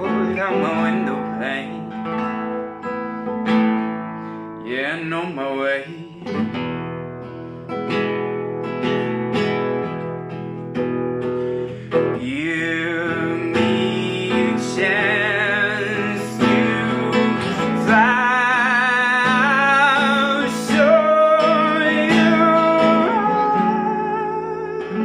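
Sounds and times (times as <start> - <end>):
sustained melody with vibrato: 0.0 - 7.8
acoustic guitar strumming: 0.0 - 25.0.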